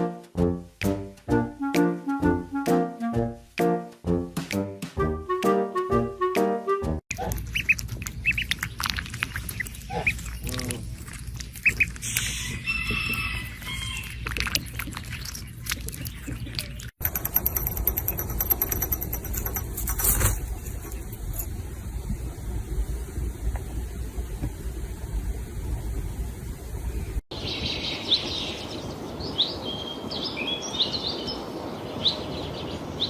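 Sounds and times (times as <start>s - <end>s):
handling noise: 16.2s - 21.6s.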